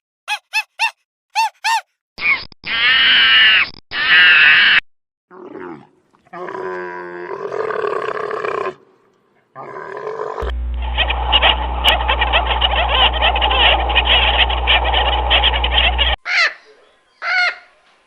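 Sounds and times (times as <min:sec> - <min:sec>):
animal cries: 0:02.7 - 0:04.8, 0:10.9 - 0:16.5.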